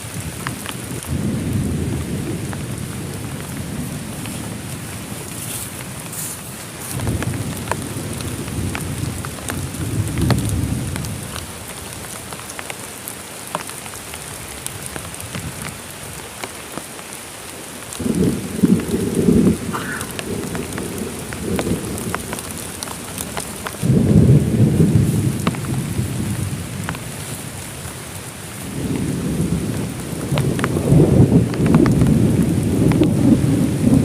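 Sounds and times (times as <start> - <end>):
thunder rumbling: 0.0 - 6.1, 6.8 - 12.2, 17.9 - 27.9, 28.6 - 34.0
heavy rain: 0.0 - 34.0
raindrops tapping close by: 0.0 - 34.0.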